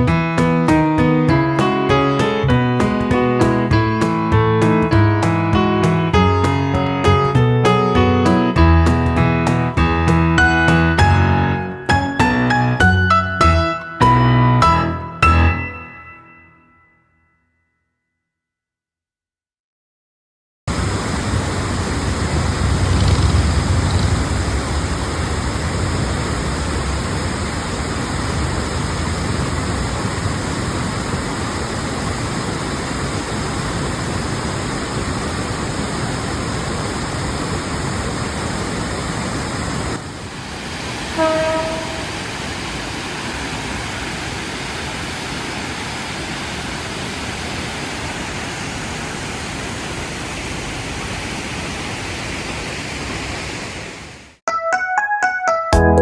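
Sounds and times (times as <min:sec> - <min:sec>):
waterfall roaring: 0:20.7 - 0:54.4.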